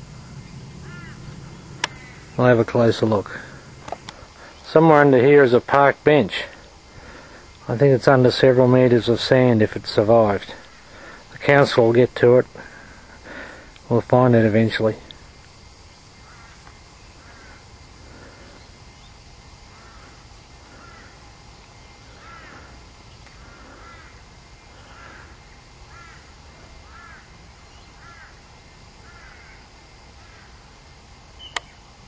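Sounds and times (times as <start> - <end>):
bird calling: 0.0 - 30.7, 31.3 - 31.9
low outdoor hiss: 0.0 - 32.0
sharp click: 1.8 - 2.0, 31.5 - 31.8.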